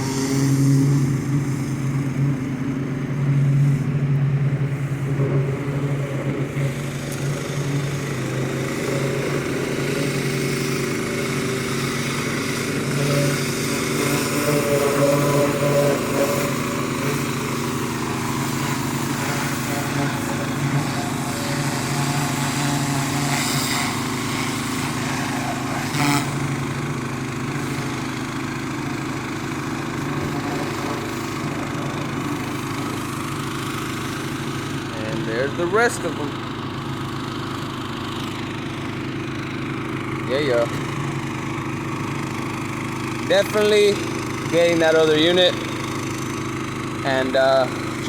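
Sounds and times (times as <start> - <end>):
high-pressure spray hissing: 0.0 - 2.6, 5.9 - 34.7
gas engine running: 0.0 - 48.0.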